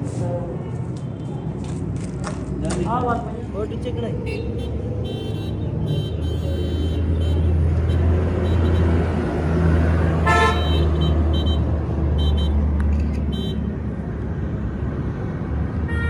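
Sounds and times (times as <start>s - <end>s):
truck horn toot: 4.3s - 9.2s, 10.2s - 12.6s, 13.3s - 13.7s.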